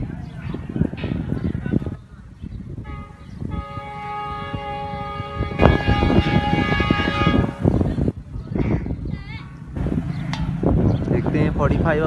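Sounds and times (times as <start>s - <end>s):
train rumble: 0.0s - 12.0s
train air horn chord: 2.9s - 7.8s.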